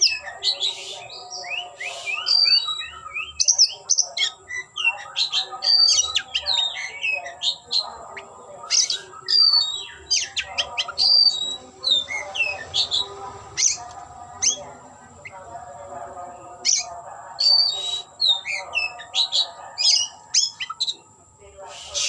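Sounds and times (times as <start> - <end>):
bird singing whistled notes: 0.0 - 7.8, 8.7 - 13.8, 16.6 - 21.0.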